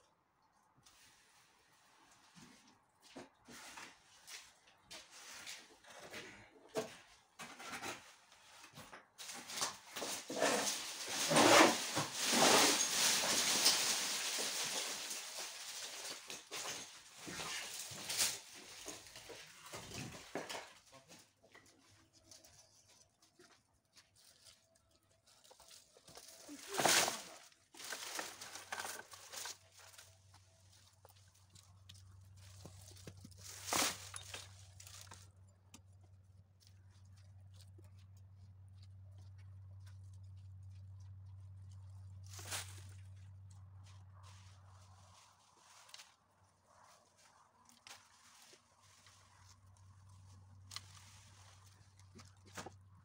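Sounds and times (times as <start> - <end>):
dry brush rustling and crackling: 9.2 - 35.6, 39.8 - 53.0.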